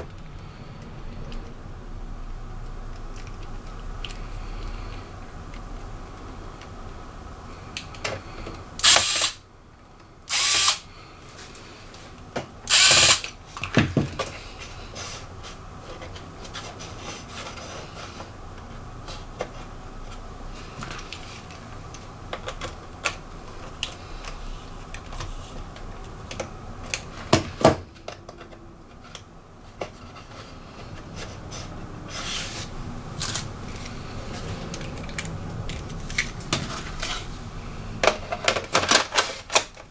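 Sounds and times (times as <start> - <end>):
electric screwdriver whirring: 8.8 - 9.4, 10.3 - 10.9, 12.7 - 13.3.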